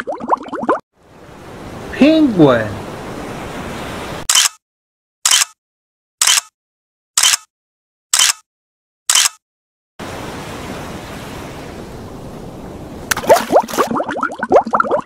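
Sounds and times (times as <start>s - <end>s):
surf rushing: 1.0s - 4.3s, 10.0s - 13.9s.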